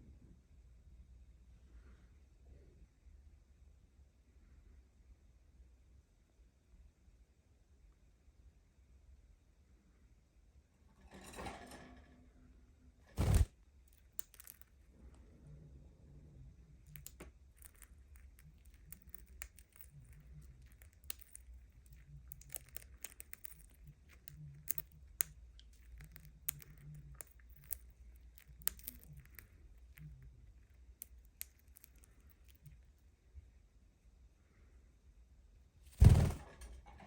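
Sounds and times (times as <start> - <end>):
low steady hum: 0.0 - 37.0
budgie pecking at a toy: 16.6 - 33.0.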